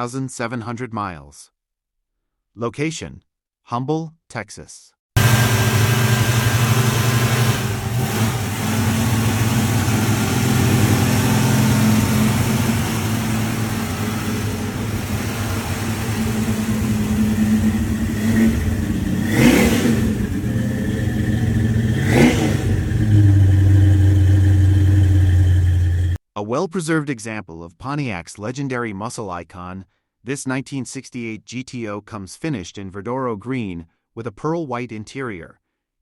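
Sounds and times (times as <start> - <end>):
car engine idling: 5.2 - 26.2
engine throttle blips: 5.2 - 26.2.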